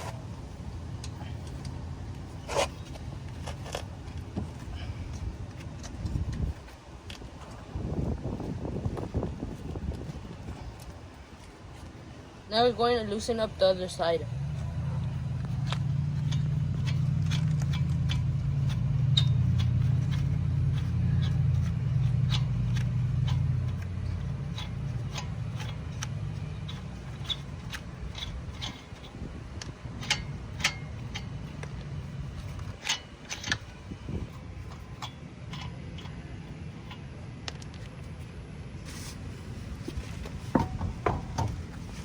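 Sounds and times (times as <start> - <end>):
low steady hum: 0.0 - 42.0
lug wrench clicking on lug nuts: 14.5 - 38.2, 40.0 - 42.0
sharp knocks: 40.5 - 41.7.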